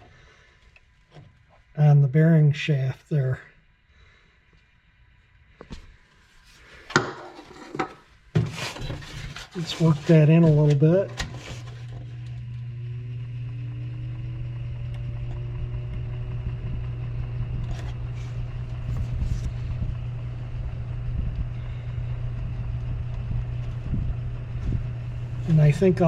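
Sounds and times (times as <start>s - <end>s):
electric fan motor humming: 6.3s - 26.0s.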